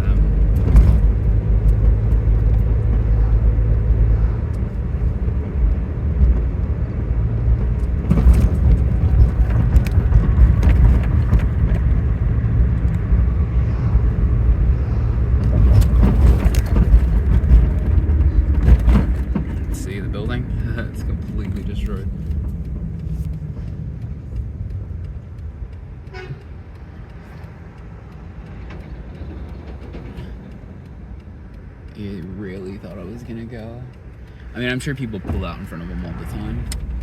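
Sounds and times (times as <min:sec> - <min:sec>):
car road noise rumble: 0:00.0 - 0:37.0
knocks from road bumps: 0:00.4 - 0:03.2, 0:07.5 - 0:12.2, 0:15.4 - 0:23.1.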